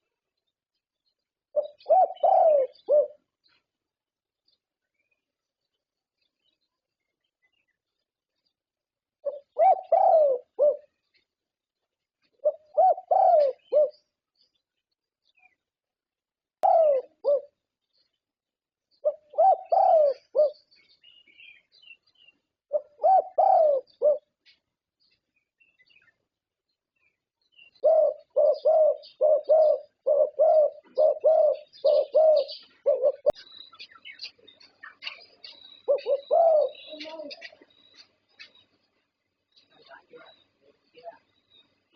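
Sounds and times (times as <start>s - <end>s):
dove cooing: 1.5s - 3.3s, 9.2s - 11.0s, 12.3s - 14.1s, 16.6s - 17.6s, 19.0s - 20.7s, 22.7s - 24.4s, 27.5s - 33.4s, 34.8s - 38.1s.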